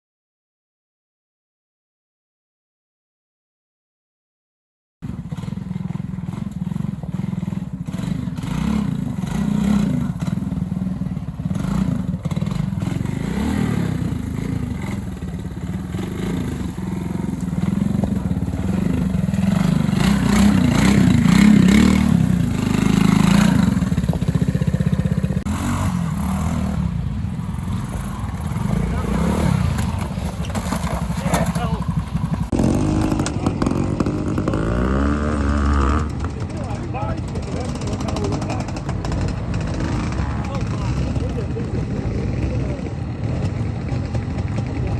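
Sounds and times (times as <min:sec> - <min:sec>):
motorcycle engine at low revs: 0:05.0 - 0:44.9
clatter: 0:27.6 - 0:34.9, 0:35.9 - 0:44.9.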